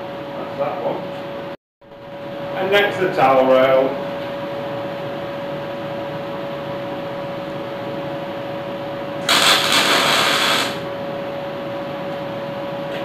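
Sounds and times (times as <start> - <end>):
electric welding burst: 9.2 - 10.9
steady tonal hum: 9.2 - 11.1.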